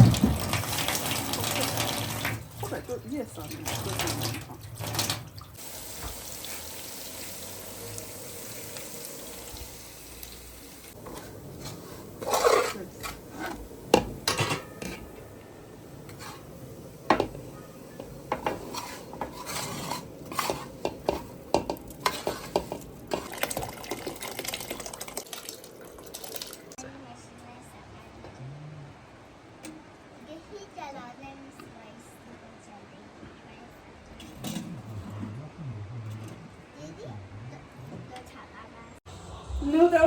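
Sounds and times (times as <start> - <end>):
running water: 0.0 - 26.8
metal utensils clinking on a pot: 11.0 - 15.2, 17.1 - 24.8.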